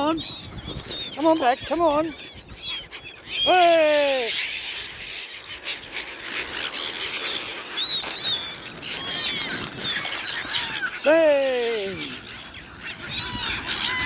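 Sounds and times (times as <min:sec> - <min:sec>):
seagulls squawking: 0:00.0 - 0:14.0
wings flapping: 0:05.6 - 0:11.0.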